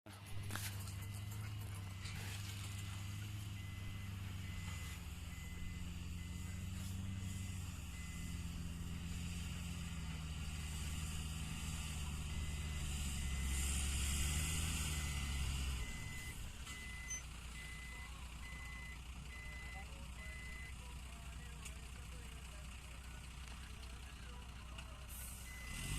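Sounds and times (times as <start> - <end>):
heavy vehicle engine running: 0.1 - 25.9
reversing alarm beeping: 0.4 - 9.2, 9.8 - 20.8, 25.4 - 25.9.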